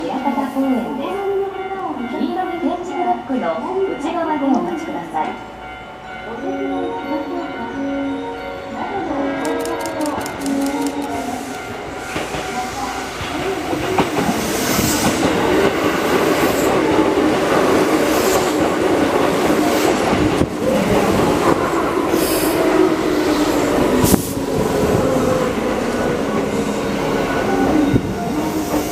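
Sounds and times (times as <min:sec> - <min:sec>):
train wheels clacking: 0:09.4 - 0:26.6.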